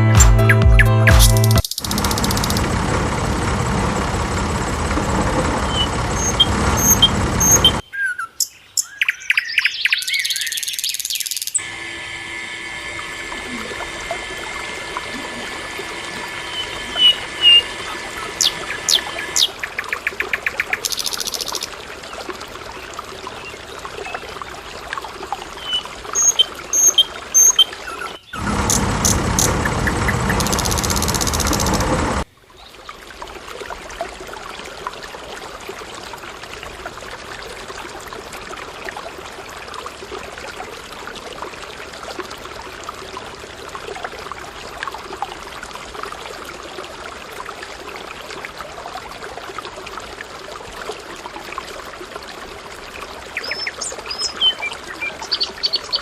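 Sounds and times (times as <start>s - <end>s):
small birds chirping: 0.4s - 2.7s, 5.6s - 11.6s, 16.5s - 21.7s, 25.6s - 31.8s.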